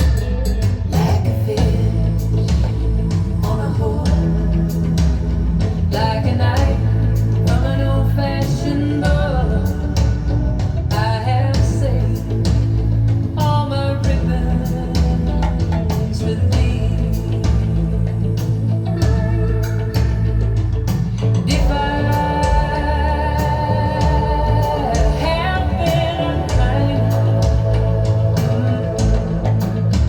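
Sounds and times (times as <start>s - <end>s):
female vocal with band: 0.8s - 30.0s.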